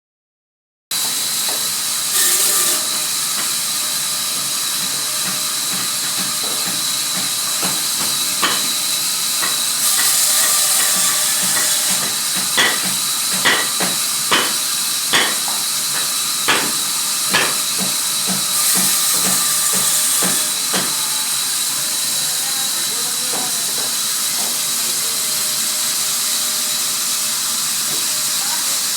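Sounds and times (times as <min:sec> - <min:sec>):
sawmill machinery hissing: 0:00.9 - 0:28.9
sharp knocks: 0:11.6 - 0:14.6, 0:15.2 - 0:18.4.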